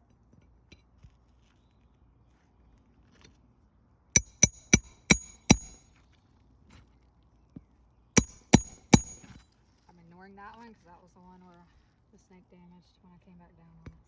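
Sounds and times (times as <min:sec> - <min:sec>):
hammer striking roofing nails: 0:04.2 - 0:05.8, 0:08.2 - 0:09.3.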